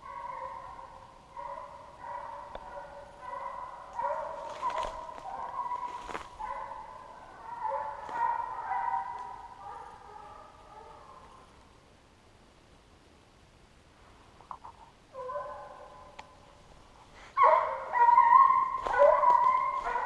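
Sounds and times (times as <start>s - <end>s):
dogs baying: 0.0s - 11.4s, 17.2s - 20.0s.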